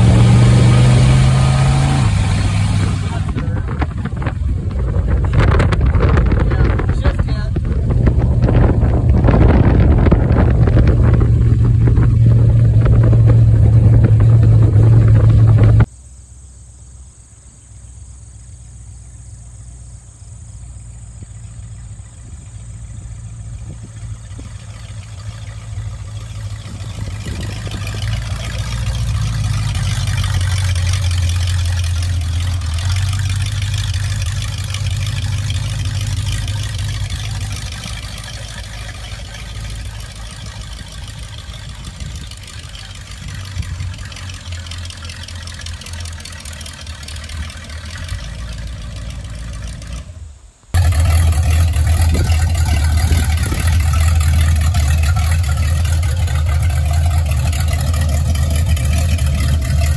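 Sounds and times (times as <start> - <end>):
wind rushing over microphone: 0.0 - 15.9, 25.7 - 30.6, 34.8 - 44.2, 51.4 - 57.5
car engine running: 0.0 - 16.3, 17.3 - 59.9.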